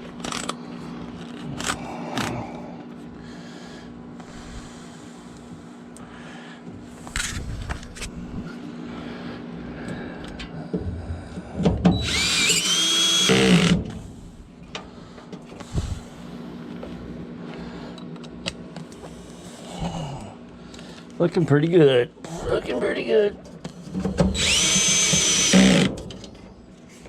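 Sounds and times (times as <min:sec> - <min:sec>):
cordless drill motor whine: 0:11.9 - 0:14.0, 0:24.3 - 0:25.9.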